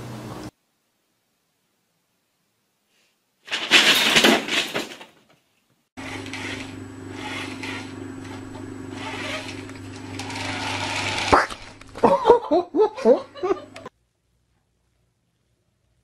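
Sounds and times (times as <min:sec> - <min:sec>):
steady low hum: 0:06.0 - 0:12.5.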